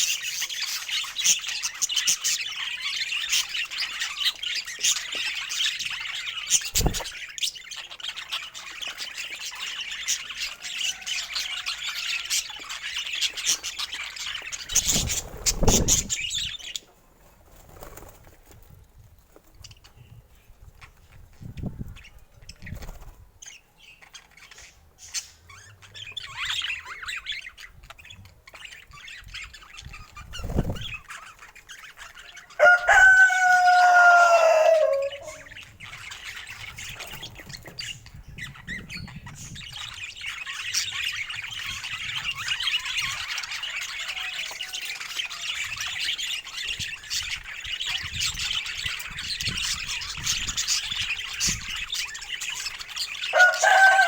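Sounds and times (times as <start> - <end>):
small birds chattering: 0.0 - 54.0
rooster crowing: 32.6 - 35.5, 53.3 - 54.0.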